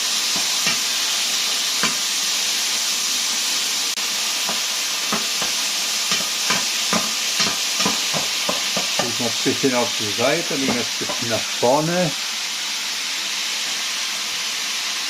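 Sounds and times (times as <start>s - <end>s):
chicken sizzling in hot oil: 0.0s - 15.0s
spatula scraping a wok: 0.1s - 2.1s, 4.4s - 9.2s.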